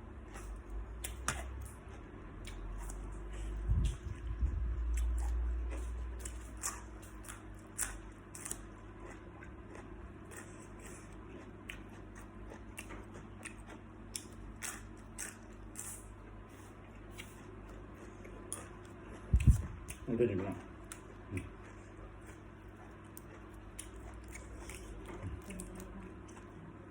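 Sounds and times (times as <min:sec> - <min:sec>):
shrimp crunching and chewing: 0:04.8 - 0:26.9
low rumbling bump: 0:19.3 - 0:19.9.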